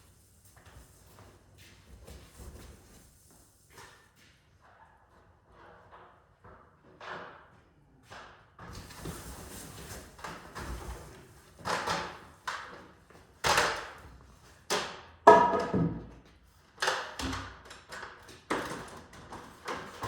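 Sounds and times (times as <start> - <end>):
objects knocking and clunking: 14.7 - 20.0.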